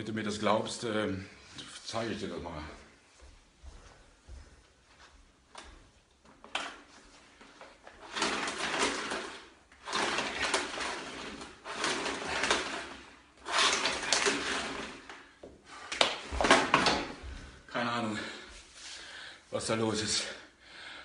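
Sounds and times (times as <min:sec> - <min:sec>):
vacuum cleaner handling scrapes: 0:06.4 - 0:17.6.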